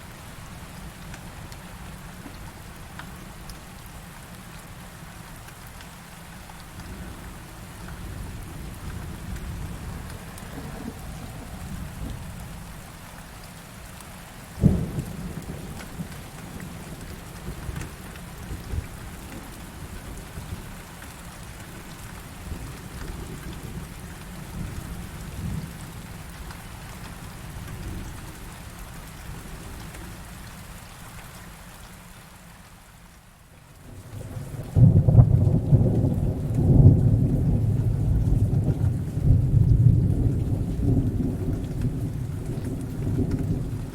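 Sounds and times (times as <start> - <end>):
heavy rain falling: 0.0 - 43.9
low rolling thunder: 7.9 - 12.8, 14.6 - 20.6, 33.9 - 43.9.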